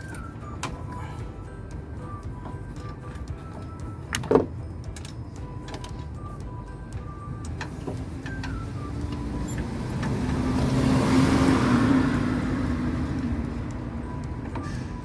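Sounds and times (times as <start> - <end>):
vehicle passing by: 8.0 - 15.0.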